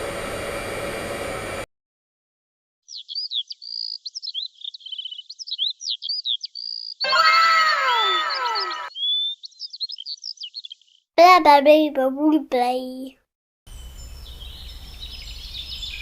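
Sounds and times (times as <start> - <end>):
hair dryer blowing: 0.0 - 1.7
bird chirp sound effect: 2.9 - 11.1.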